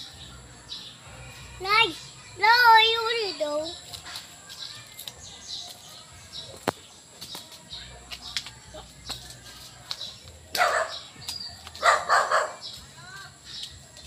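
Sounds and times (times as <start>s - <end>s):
small birds chirping: 0.0s - 14.0s
footsteps on dry leaves: 3.3s - 14.0s.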